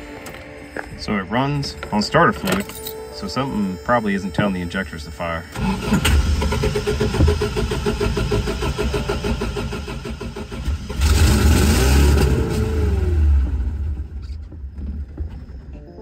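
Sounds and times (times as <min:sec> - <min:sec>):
engine cranking and revving: 0:05.5 - 0:14.3.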